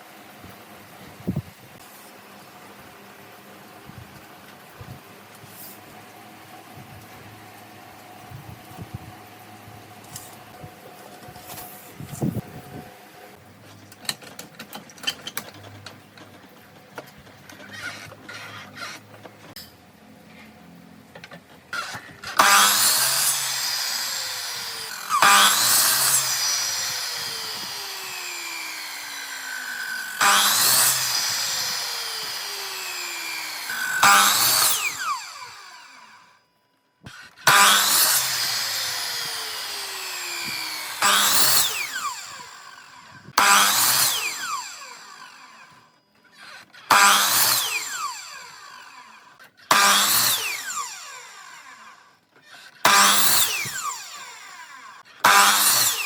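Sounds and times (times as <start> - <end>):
power tool motor whining: 17.5 - 19.4, 21.7 - 36.4, 37.1 - 56.0.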